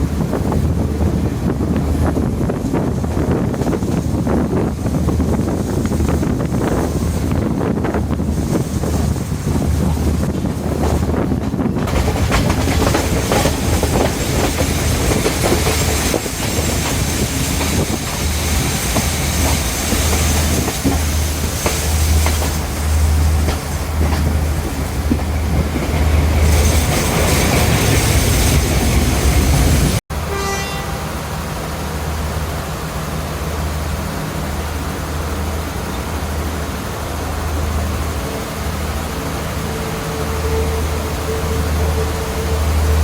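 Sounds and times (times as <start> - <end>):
rush of wind: 0.0 - 30.3
train rumbling at speed: 0.0 - 43.0
wheels clicking over rail joints: 9.8 - 29.8.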